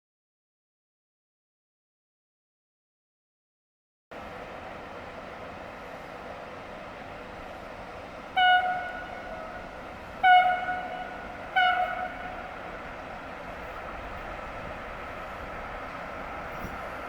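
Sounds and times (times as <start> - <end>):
train horn blasts: 8.2 - 13.1.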